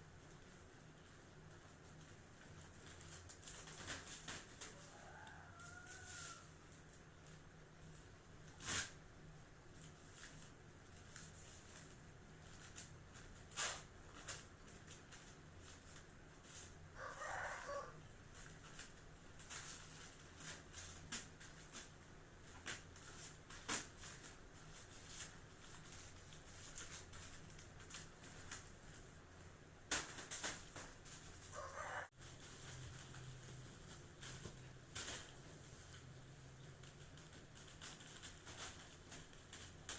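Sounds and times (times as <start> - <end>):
rooster crowing: 4.7 - 6.6, 17.0 - 18.0, 31.5 - 32.1.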